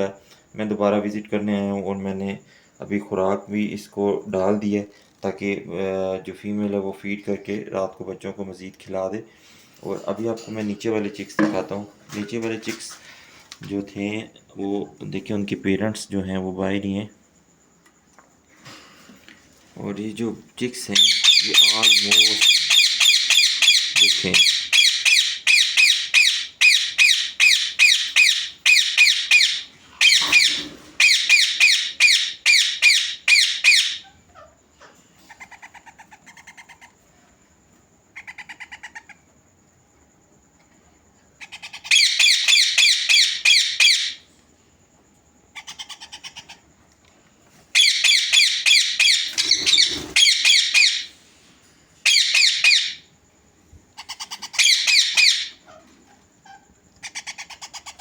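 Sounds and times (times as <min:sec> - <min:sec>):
parakeet chicks begging calls: 0:20.9 - 0:34.5, 0:41.4 - 0:44.2, 0:47.7 - 0:51.2, 0:52.0 - 0:53.0, 0:54.0 - 0:58.0.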